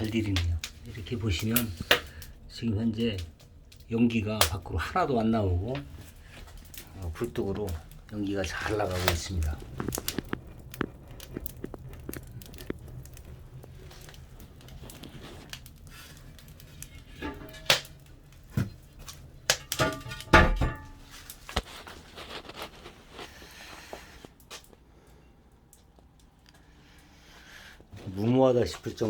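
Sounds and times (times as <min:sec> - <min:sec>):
low rumble of draft: 0:00.0 - 0:19.5
wood fire crackling and popping: 0:00.0 - 0:29.0
knocks in firebox: 0:19.4 - 0:21.1.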